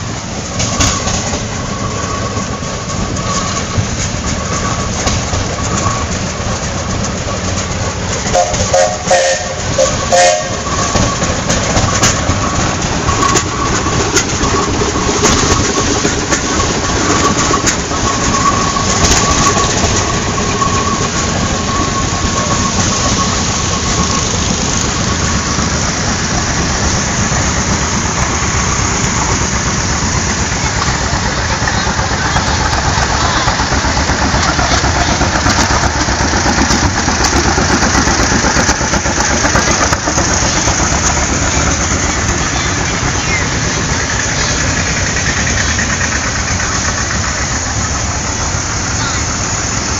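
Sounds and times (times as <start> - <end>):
tractor engines running: 0.0 - 49.9
faint whistle-like tone: 0.6 - 6.9, 17.1 - 24.4.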